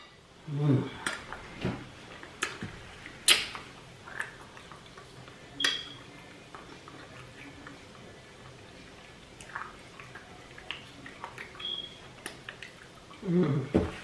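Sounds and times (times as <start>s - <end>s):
cutlery clinking against a dish: 5.6s - 6.0s.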